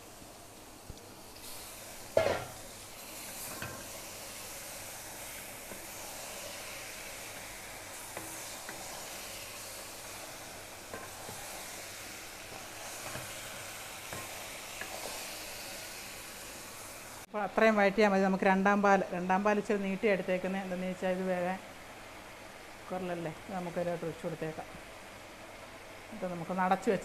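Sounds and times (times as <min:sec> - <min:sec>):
chicken sizzling in a pot: 0:00.0 - 0:27.0
spatula scraping and knocking pot: 0:02.2 - 0:02.6.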